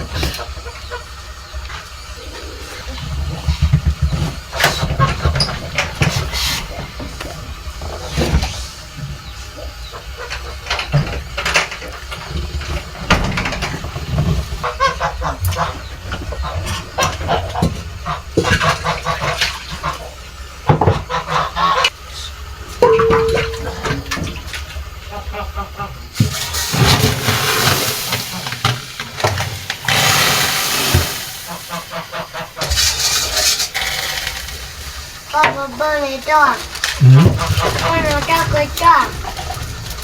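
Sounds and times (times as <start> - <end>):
geese honking: 14.5 - 24.2, 29.9 - 33.1, 35.6 - 39.8.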